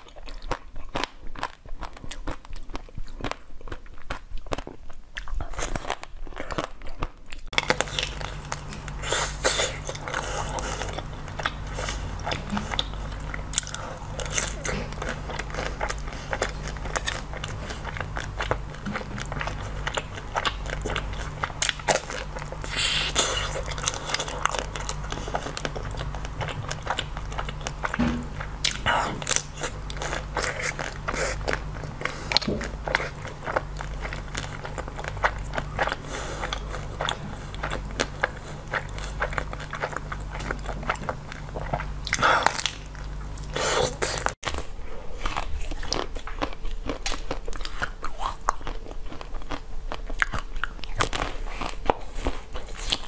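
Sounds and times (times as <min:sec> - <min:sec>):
wet mouth sounds: 0:07.4 - 0:44.4.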